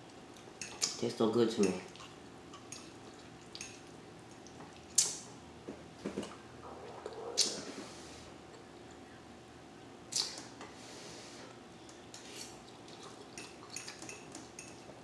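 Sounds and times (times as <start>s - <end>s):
wet chewing and mouth smacks: 10.1s - 10.5s, 12.2s - 14.5s.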